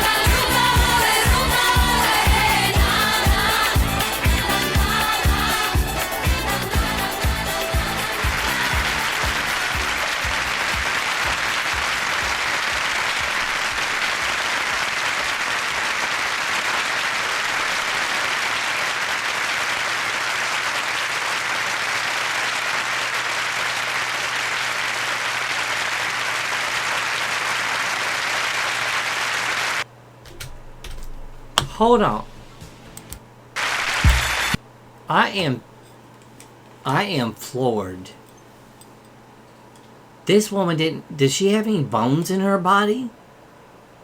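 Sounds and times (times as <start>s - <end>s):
audience applauding: 0.0s - 29.9s, 33.6s - 34.6s.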